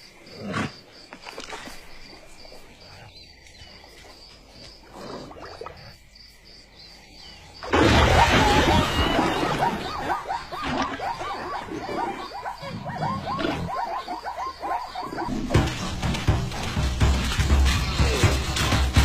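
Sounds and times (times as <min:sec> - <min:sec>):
background noise: 0:00.0 - 0:19.0
animals calling: 0:07.3 - 0:19.0.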